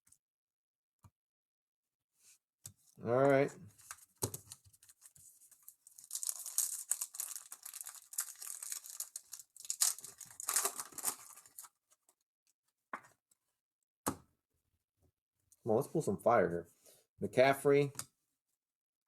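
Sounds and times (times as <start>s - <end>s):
plastic wrapper tearing and crinkling: 3.9s - 11.7s.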